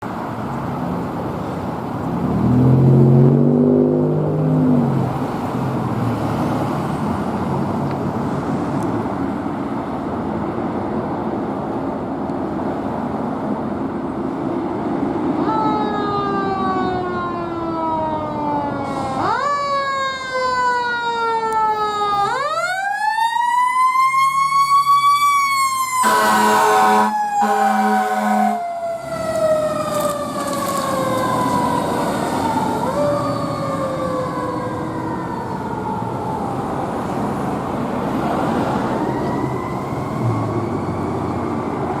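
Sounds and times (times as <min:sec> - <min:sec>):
truck engine: 0:00.0 - 0:15.4, 0:24.1 - 0:42.0
fire engine siren wailing: 0:15.3 - 0:42.0
horn blasts: 0:26.0 - 0:28.6.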